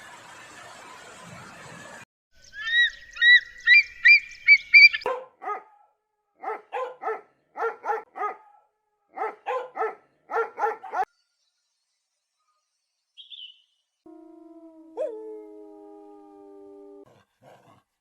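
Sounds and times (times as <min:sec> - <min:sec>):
dog yipping: 0:05.0 - 0:05.8, 0:09.2 - 0:11.1
dog barking: 0:05.0 - 0:11.1.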